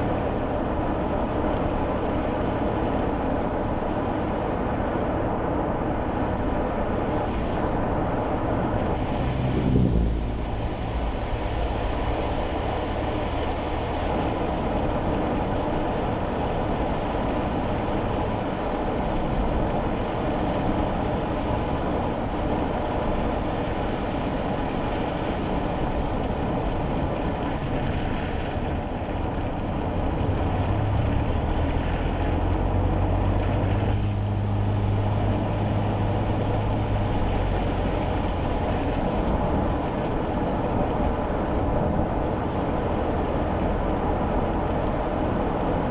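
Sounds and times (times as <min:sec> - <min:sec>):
deep low drone: 0:00.0 - 0:45.9
small engine hum: 0:00.0 - 0:45.9
tyre and road noise on wet road: 0:00.0 - 0:45.9.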